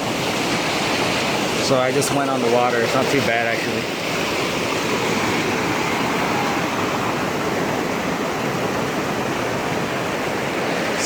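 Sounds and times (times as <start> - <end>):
flood water rushing: 0.0 - 11.0.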